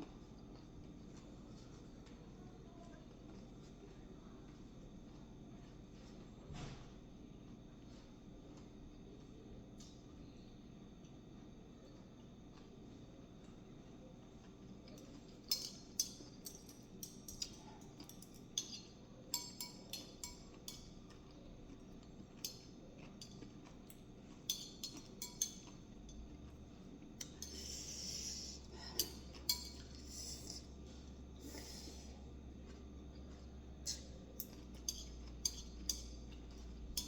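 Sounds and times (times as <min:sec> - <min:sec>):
utensils clinking on dishes: 0:14.9 - 0:20.9, 0:24.4 - 0:26.3, 0:28.8 - 0:30.6, 0:33.9 - 0:37.0.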